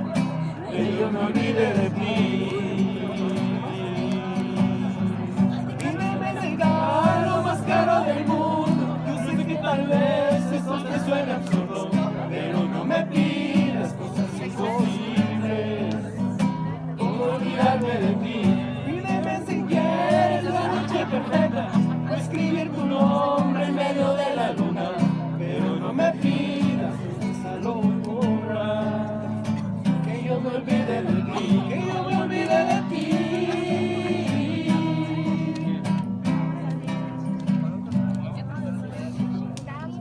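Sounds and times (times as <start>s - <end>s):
acoustic guitar strumming: 0.0s - 40.0s.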